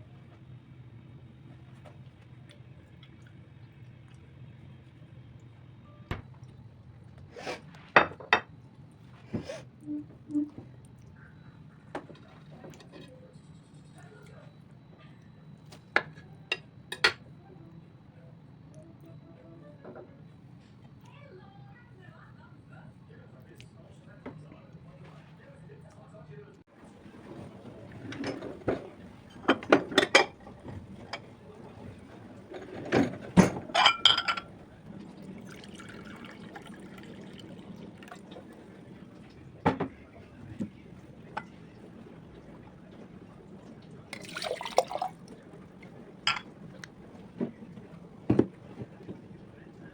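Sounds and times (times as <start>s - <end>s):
low steady hum: 0.0s - 49.9s
dishes and cutlery clinking: 16.0s - 17.2s, 27.2s - 34.6s, 46.2s - 46.8s
liquid poured into a glass: 35.2s - 38.6s, 44.1s - 45.4s.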